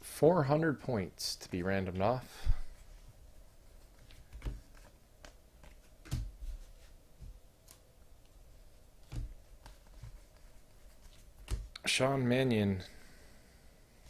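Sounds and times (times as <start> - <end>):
cards clicking and tapping on table: 4.0 - 6.3.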